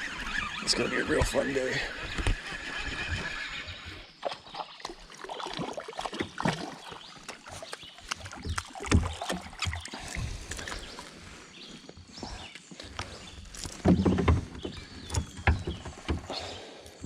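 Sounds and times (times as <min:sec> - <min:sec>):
light water sounds: 0:04.2 - 0:11.4
gear knocking against kayak: 0:12.9 - 0:16.6.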